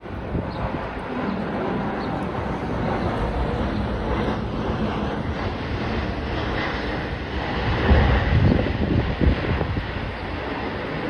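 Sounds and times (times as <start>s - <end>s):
jet airliner engines rumbling: 0.0s - 11.0s.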